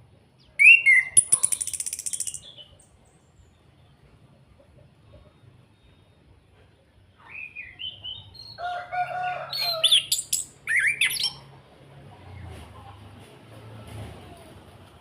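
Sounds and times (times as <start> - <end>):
thrush singing whistles: 0.6 - 2.6, 10.0 - 11.4.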